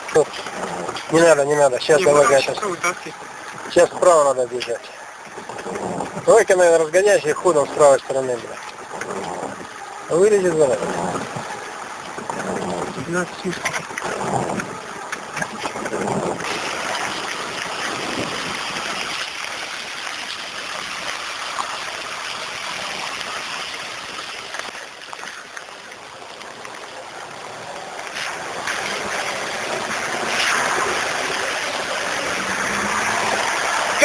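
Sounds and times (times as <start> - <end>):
water splashing around driving vehicle: 0.0 - 34.0.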